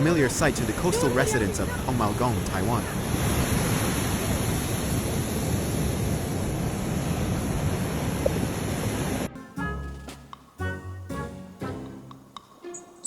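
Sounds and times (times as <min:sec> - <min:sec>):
surf breaking on shore: 0:00.0 - 0:09.3.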